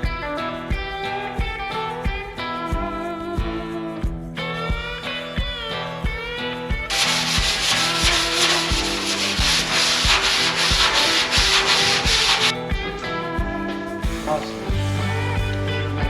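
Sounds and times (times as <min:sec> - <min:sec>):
background music with beat: 0:00.0 - 0:16.0
sanding on metal: 0:06.9 - 0:12.5.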